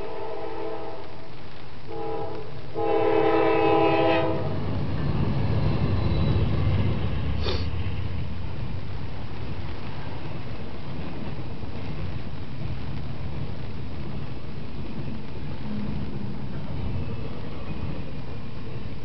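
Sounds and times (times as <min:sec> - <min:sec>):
locomotive air horn blasts: 0:00.0 - 0:01.3, 0:01.9 - 0:04.6
diesel locomotive rumble: 0:01.9 - 0:19.0.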